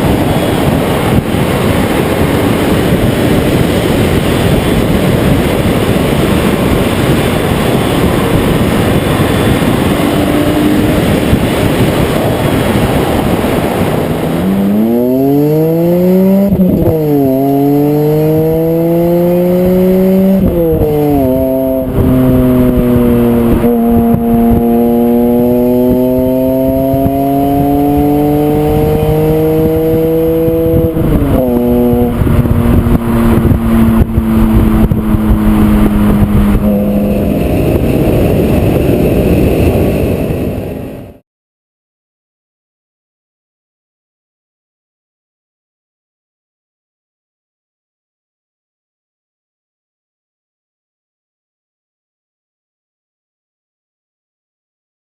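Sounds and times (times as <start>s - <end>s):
car engine accelerating hard: 0.0s - 41.1s
loud rushing noise: 0.0s - 41.2s.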